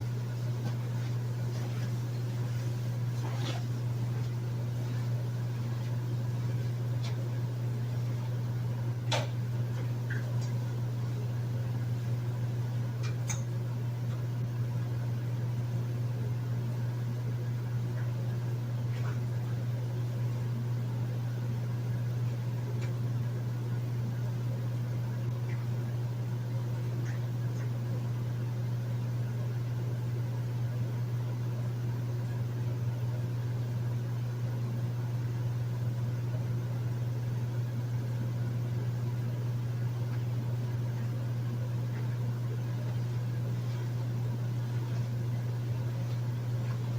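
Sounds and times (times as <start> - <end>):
air conditioner humming: 0.0 - 46.9.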